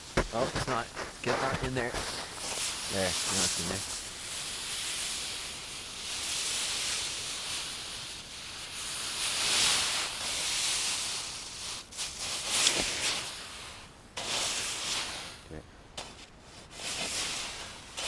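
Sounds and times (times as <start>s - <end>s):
hot steel hissing in snow: 0.0s - 18.0s.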